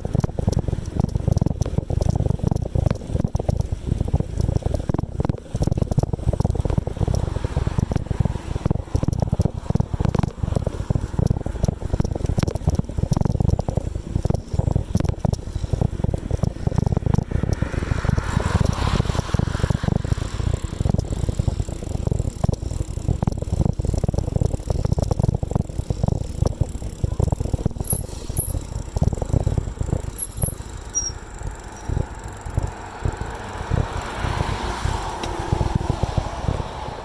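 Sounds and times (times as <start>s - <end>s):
wind buffeting microphone: 0.0s - 27.9s, 28.5s - 37.0s
bicycle rattling over road: 0.0s - 37.0s
high-pitched squeaks: 27.8s - 28.7s, 30.1s - 31.2s.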